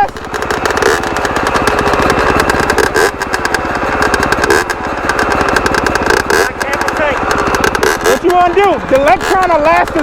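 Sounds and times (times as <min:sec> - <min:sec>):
dirt bike engine idling: 0:00.0 - 0:10.0.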